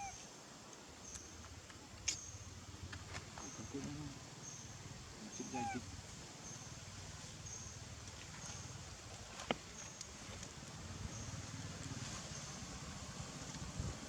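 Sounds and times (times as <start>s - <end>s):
monkey call: 5.3s - 5.8s.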